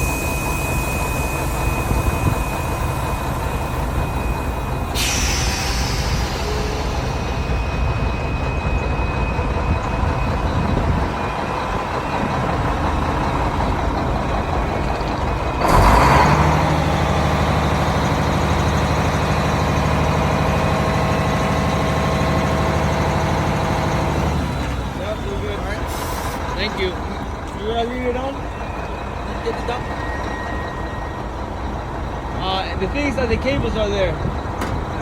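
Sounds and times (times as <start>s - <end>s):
diesel truck engine running: 0.0s - 35.0s
loud air hiss: 4.8s - 7.4s, 25.9s - 26.4s.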